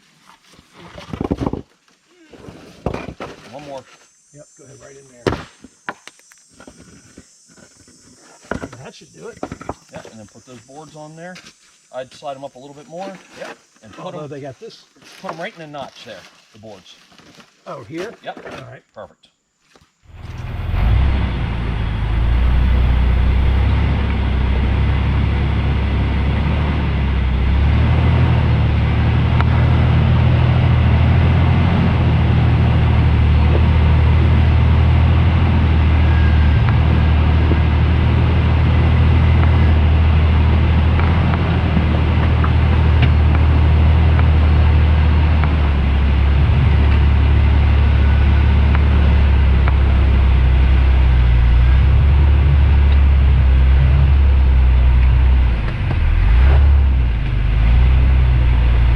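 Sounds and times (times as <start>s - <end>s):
engine running at low revs: 20.1s - 58.9s.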